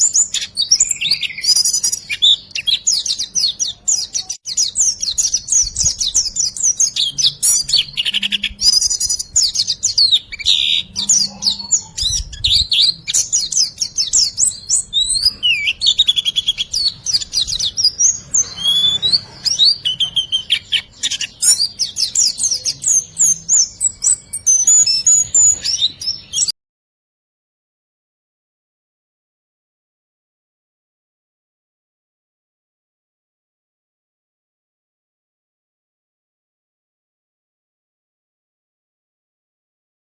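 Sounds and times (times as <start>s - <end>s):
songbird chirping and whistling: 0.0s - 26.5s.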